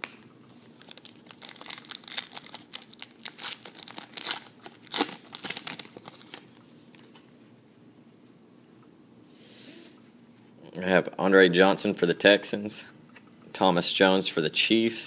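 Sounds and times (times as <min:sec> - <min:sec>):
foil wrapper tearing and crinkling: 0:00.8 - 0:06.5.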